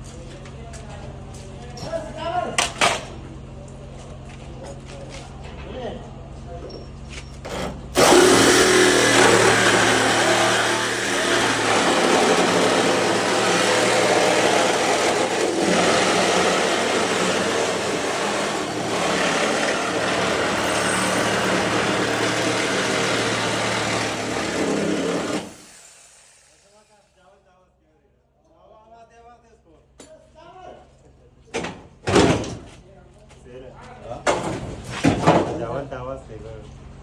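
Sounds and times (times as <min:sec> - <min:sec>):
machine running loudly: 0:07.9 - 0:26.7.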